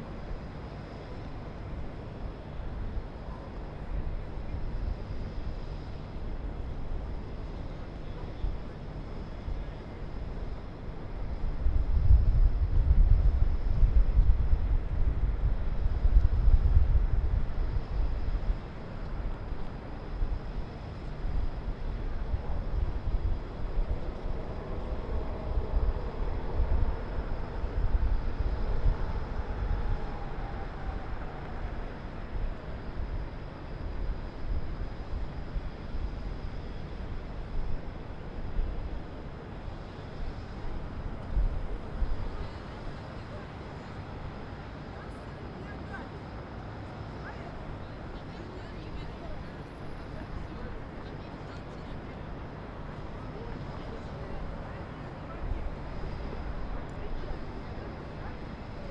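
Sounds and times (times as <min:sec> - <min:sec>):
distant city traffic hum: 0:00.0 - 0:58.9
low gusty rumble: 0:10.4 - 0:45.0.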